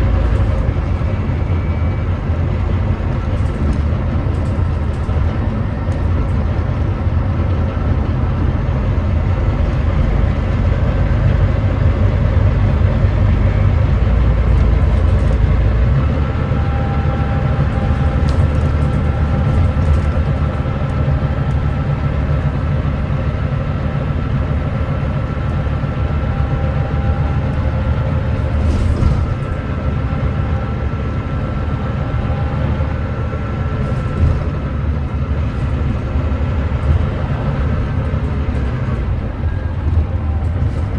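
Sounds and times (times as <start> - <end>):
bus diesel engine working hard: 0.0 - 40.9.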